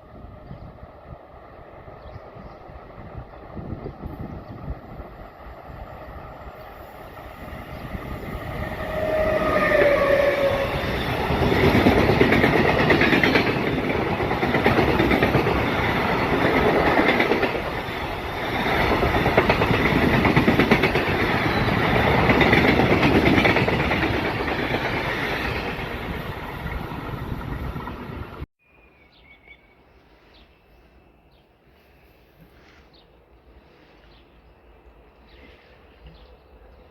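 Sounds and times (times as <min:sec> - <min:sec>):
train wheels rumbling on rails: 0:00.0 - 0:28.5
train horn: 0:08.5 - 0:11.2.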